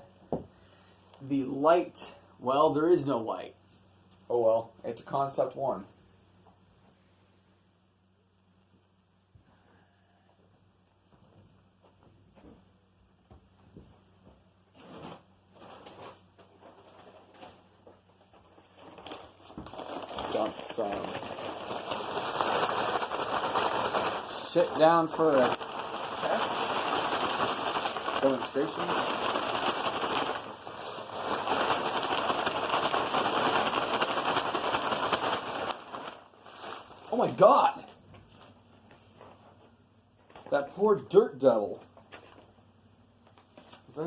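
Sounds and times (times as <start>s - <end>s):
rustling and scraping handling noises: 14.7s - 40.6s
grit rattling through vacuum: 19.7s - 37.4s
upright vacuum running: 20.3s - 36.7s.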